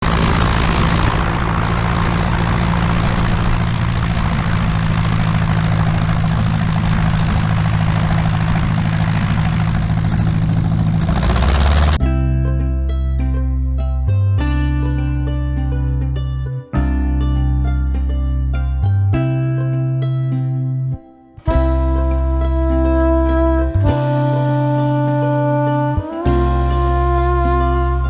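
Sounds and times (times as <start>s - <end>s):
light aircraft engine droning: 0.0s - 11.8s
airflow noise: 0.0s - 12.0s
plucked-string music: 12.0s - 28.0s.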